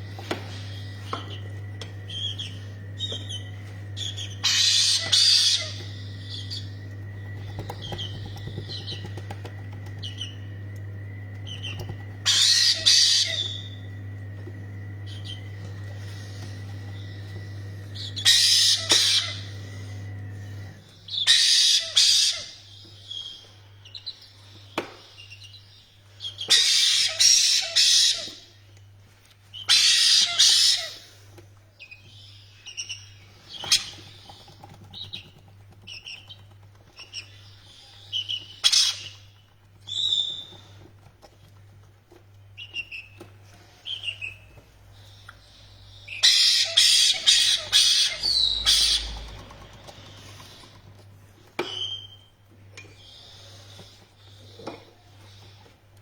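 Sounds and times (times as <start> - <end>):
steady low hum: 0.0 - 29.4, 30.4 - 56.0
parrots screeching: 4.0 - 6.7, 12.2 - 13.7, 18.1 - 19.5, 21.1 - 22.7, 26.4 - 28.5, 29.6 - 31.0, 38.1 - 39.3, 46.1 - 50.6
parrot chirps and whistles: 46.1 - 49.2.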